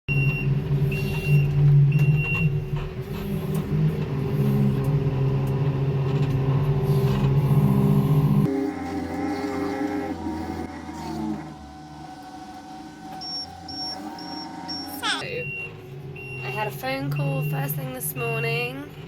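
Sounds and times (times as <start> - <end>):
diesel engine running: 0.1 - 19.0
high electronic beeps: 13.2 - 18.6.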